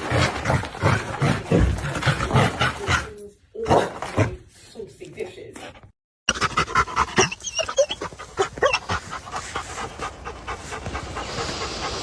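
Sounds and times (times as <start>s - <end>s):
dog panting: 5.6s - 12.0s
high-pitched squeaks: 7.2s - 8.8s.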